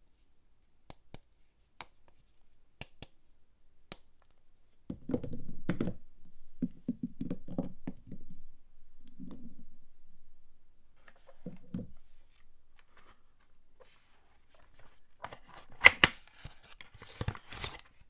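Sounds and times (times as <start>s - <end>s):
packaging rustling and knocking: 14.6s - 18.0s.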